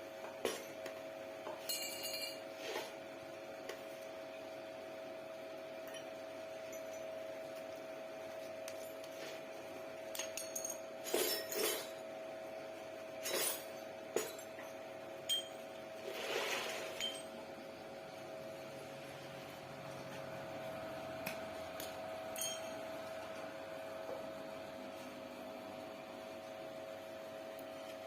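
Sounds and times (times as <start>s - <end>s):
steady electrical hum: 0.0s - 28.0s
metal clinks and taps: 1.6s - 2.4s, 22.4s - 22.8s.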